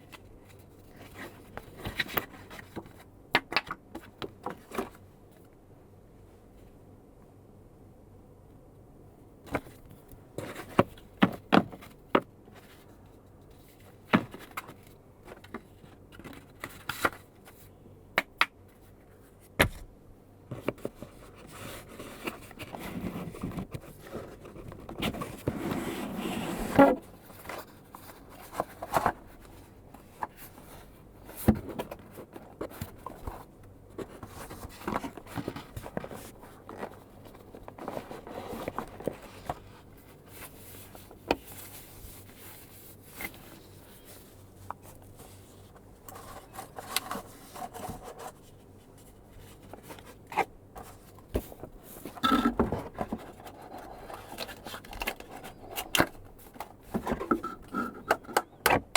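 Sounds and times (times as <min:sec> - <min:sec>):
packaging rustling and scraping: 0:20.6 - 0:58.6.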